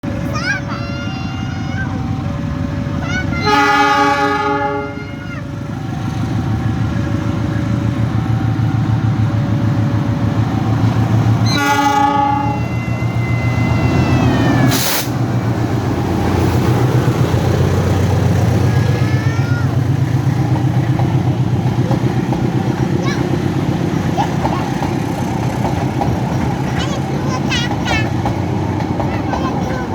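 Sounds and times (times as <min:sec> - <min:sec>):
train rumbling past: 0:00.0 - 0:29.9
train horn chord blasts: 0:03.4 - 0:05.2, 0:11.4 - 0:12.8
loud burst of noise: 0:13.6 - 0:15.8.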